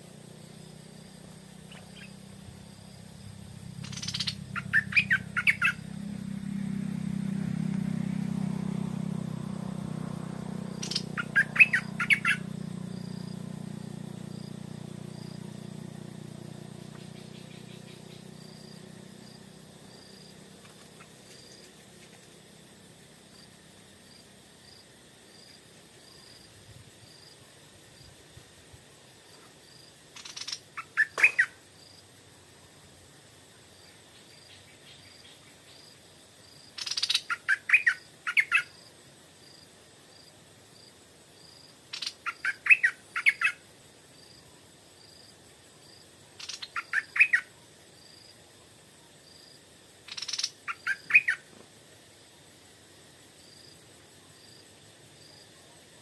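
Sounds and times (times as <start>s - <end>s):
bulbul singing: 1.6s - 19.4s, 30.2s - 31.6s, 46.4s - 47.5s.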